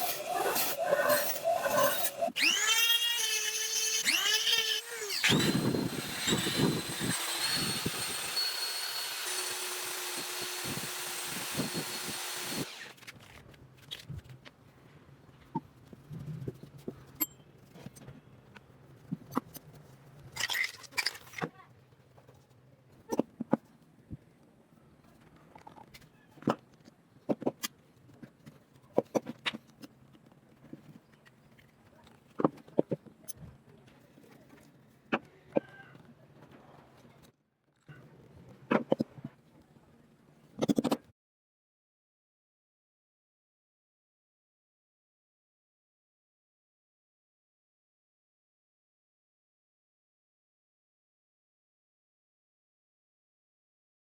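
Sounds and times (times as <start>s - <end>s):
power tool whining and grinding: 0.0s - 13.0s.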